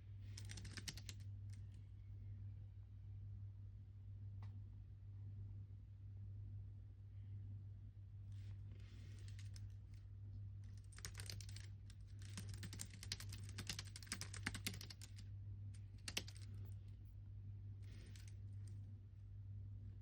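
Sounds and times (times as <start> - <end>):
steady low hum: 0.0 - 20.0
typing on computer keyboard: 0.3 - 1.2, 10.7 - 15.2, 15.8 - 16.7, 17.9 - 18.4.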